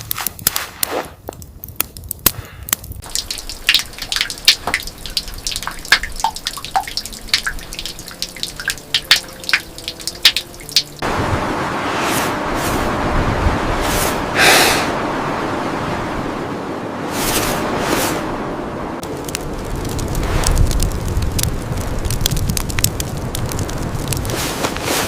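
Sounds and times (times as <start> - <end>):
water dripping: 1.7 - 11.0
steady rushing water: 3.0 - 11.7.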